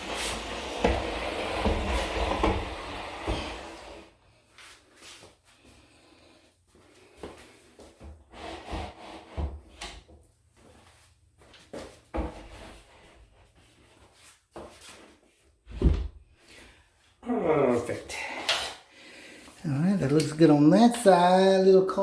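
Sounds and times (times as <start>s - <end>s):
baseboard trim scraping on wall: 0.0s - 4.1s, 8.3s - 9.9s.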